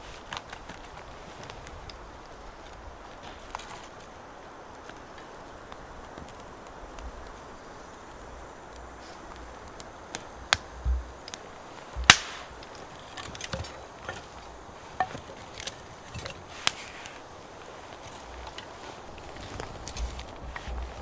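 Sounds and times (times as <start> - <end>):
firewood cracking and knocking: 8.8 - 21.0.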